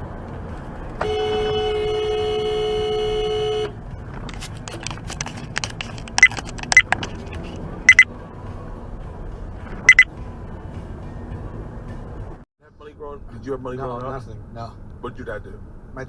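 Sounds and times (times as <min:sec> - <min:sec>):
vehicle horn: 0:01.0 - 0:03.8
sharp clicks: 0:04.2 - 0:08.1
short high beeps: 0:07.9 - 0:08.1, 0:09.9 - 0:10.1.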